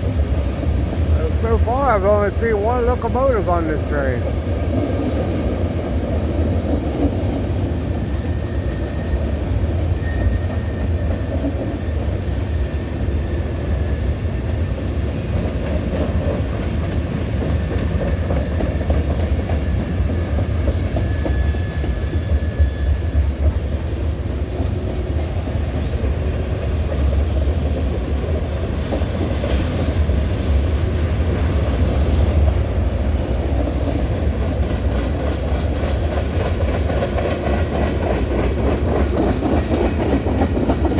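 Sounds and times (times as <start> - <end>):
freight train rumbling past: 0.0 - 40.9
wheels clacking over rail joints: 23.3 - 40.9.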